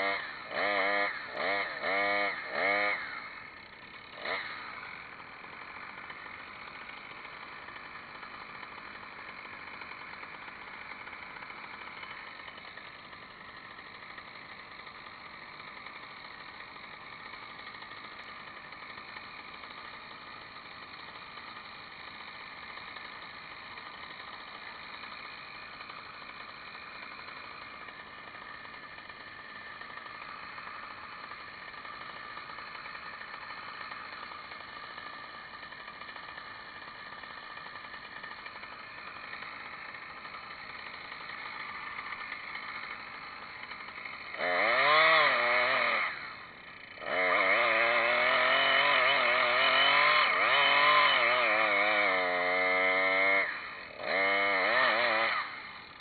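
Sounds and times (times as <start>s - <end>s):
chainsaw revving: 0.0s - 56.0s.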